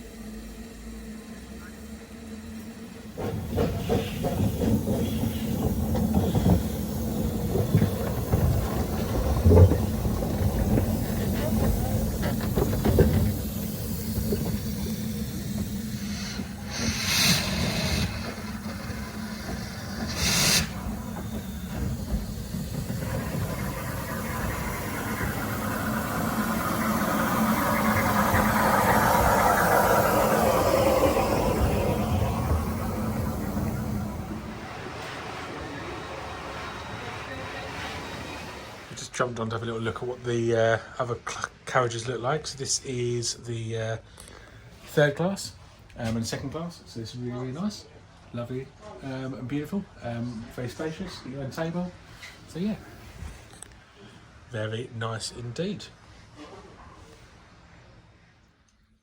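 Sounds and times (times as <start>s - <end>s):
steam hissing: 0.0s - 39.2s
train rumbling: 0.0s - 43.9s
clanks and knocks: 3.2s - 15.8s.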